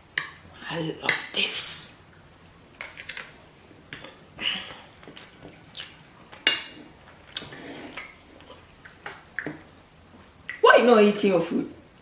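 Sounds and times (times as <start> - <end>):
chewing sounds: 4.7 - 9.7.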